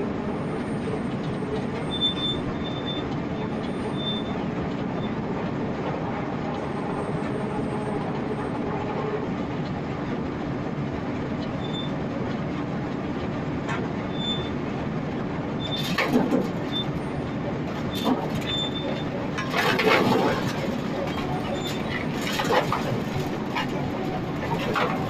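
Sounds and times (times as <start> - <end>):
loud clatter: 15.7 - 17.1, 17.7 - 25.0
feed grinder rattling: 17.7 - 25.0.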